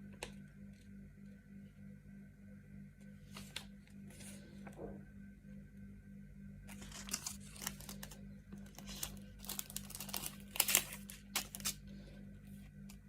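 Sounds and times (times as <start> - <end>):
packaging crinkling and tearing: 6.7 - 11.8.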